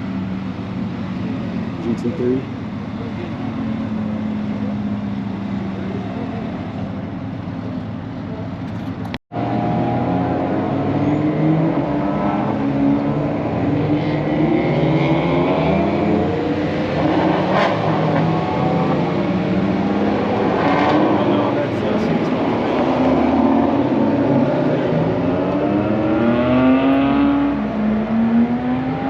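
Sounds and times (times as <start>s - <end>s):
race car engines accelerating: 0.0s - 29.0s.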